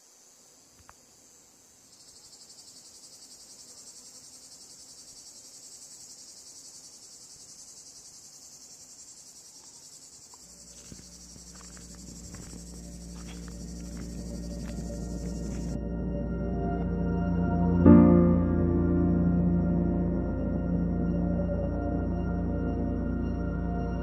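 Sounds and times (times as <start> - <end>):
crickets chirring: 0.0 - 15.9
background music: 12.7 - 24.0.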